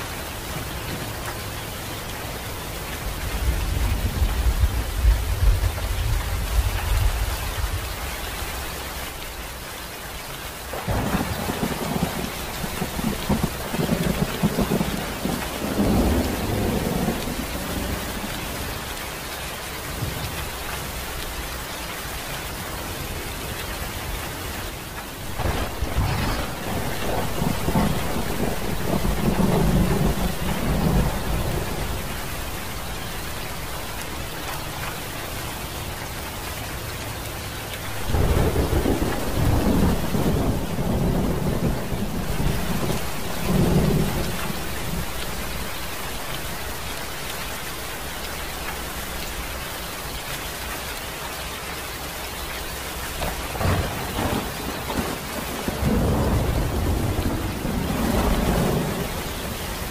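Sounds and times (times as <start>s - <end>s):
steady rain: 0.0s - 59.9s
thunder rumbling: 3.1s - 8.0s, 10.7s - 18.9s, 25.2s - 35.4s, 37.8s - 47.4s, 53.1s - 59.9s.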